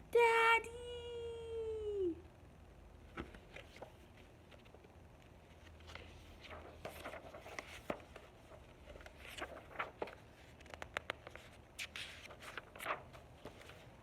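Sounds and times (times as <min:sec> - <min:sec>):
paper pages rustling: 0:03.1 - 0:14.0.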